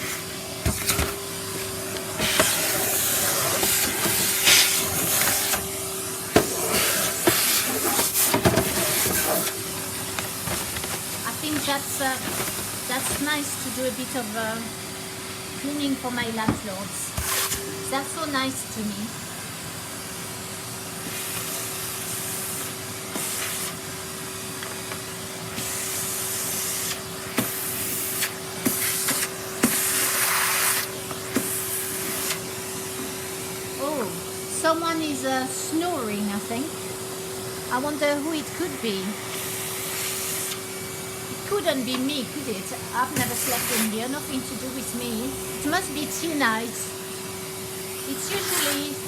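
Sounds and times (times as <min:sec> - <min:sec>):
vacuum cleaner running: 0:00.0 - 0:49.0.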